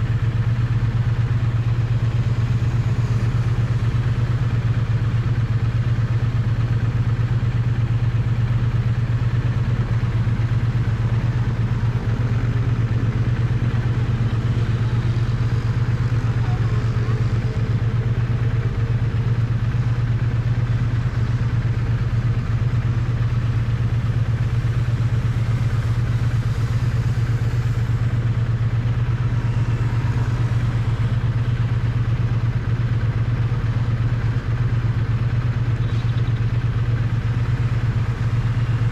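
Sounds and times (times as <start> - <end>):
motorcycle engine and exhaust running: 0.0 - 38.9.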